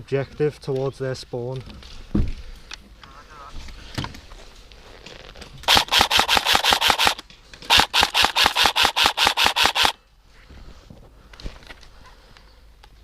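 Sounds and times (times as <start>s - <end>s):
airsoft rifle rapid shots: 5.7s - 10.0s.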